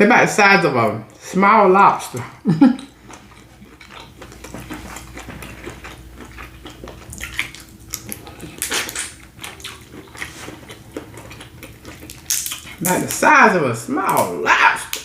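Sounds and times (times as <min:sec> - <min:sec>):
wet crackling of prawns being eaten: 0:02.8 - 0:13.3.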